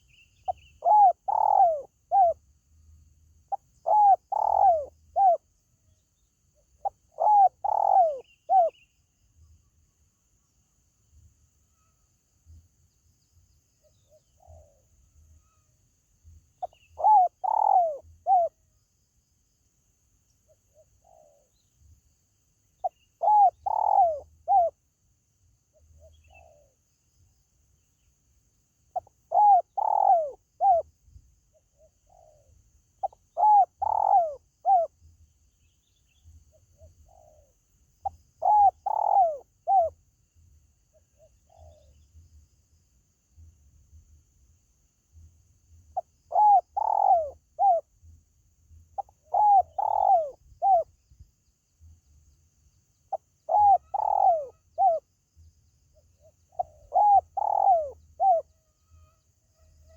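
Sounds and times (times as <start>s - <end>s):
dove cooing: 0.0s - 2.4s, 3.5s - 5.5s, 6.8s - 8.8s, 16.6s - 18.6s, 22.8s - 24.8s, 25.8s - 26.8s, 28.9s - 30.9s, 31.8s - 34.9s, 36.8s - 40.0s, 46.0s - 47.9s, 49.0s - 50.9s, 53.1s - 55.0s, 56.2s - 58.5s.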